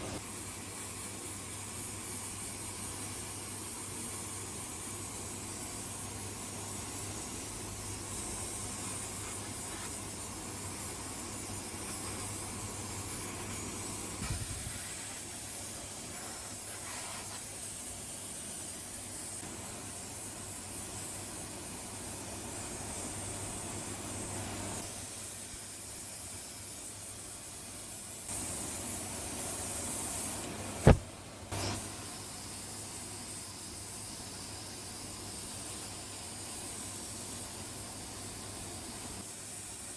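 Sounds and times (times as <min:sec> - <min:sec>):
steady hissing noise: 0:00.0 - 0:39.9
sharp knock: 0:30.8 - 0:31.2.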